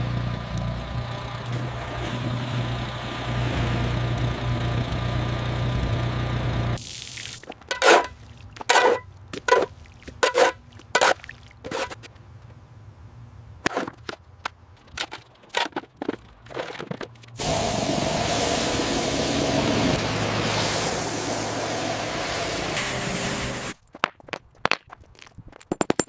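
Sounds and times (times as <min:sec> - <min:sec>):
small engine running: 0:00.0 - 0:06.8, 0:17.4 - 0:23.8
sharp scraping and knocking: 0:07.6 - 0:12.1
steady hissing spray: 0:17.4 - 0:23.8.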